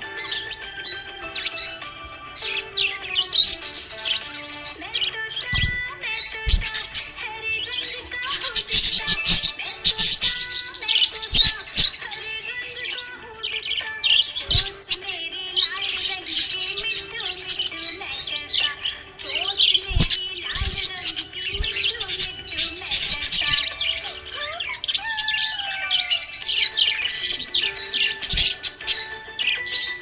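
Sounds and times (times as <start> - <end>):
background music: 0.0 - 30.0
budgerigars chirping: 0.0 - 30.0
low thumps: 5.5 - 7.0.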